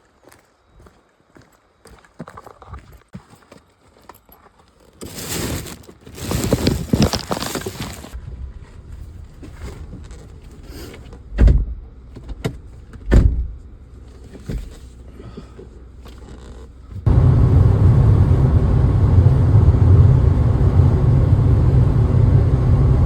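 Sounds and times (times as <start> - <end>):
rustling noise: 4.7 - 11.3
low steady hum: 6.2 - 23.0.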